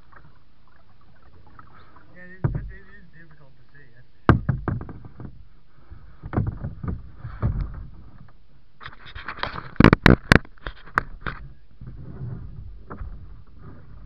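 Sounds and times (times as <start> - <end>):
paddle splashing in water: 0.0 - 14.0
paddle knocking against hull: 1.2 - 3.4, 4.2 - 8.4, 9.3 - 14.0.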